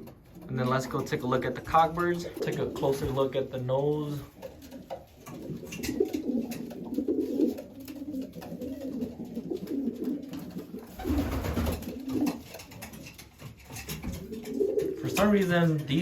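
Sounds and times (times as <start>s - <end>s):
pigeons cooing: 0.0s - 16.0s
rustling: 0.0s - 16.0s.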